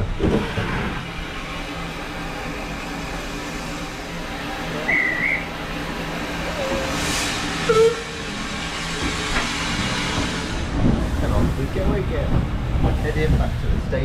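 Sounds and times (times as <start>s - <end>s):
train rumble: 0.0s - 14.0s
steam hiss: 0.4s - 12.1s.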